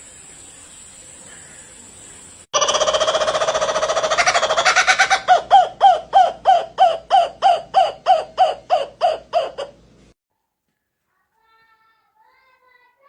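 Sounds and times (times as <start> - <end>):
bird calling: 0.0 - 9.7.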